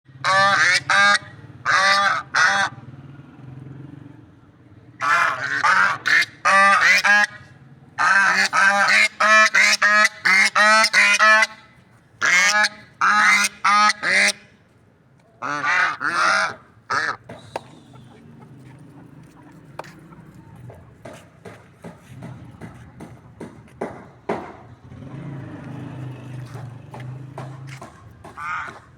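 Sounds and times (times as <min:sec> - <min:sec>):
guinea fowl honking calls: 0:00.2 - 0:02.7, 0:05.0 - 0:07.4, 0:08.0 - 0:11.6, 0:12.2 - 0:14.4, 0:15.4 - 0:20.4.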